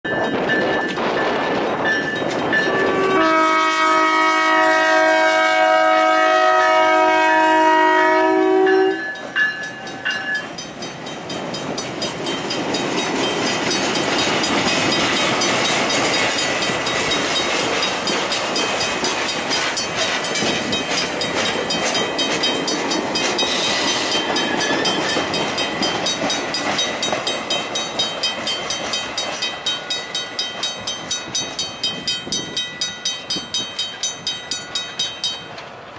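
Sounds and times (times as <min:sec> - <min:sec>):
crossing bell ringing: 0:00.0 - 0:35.9
train wheels clattering on rails: 0:00.1 - 0:35.9
locomotive air horn blast: 0:02.8 - 0:09.1.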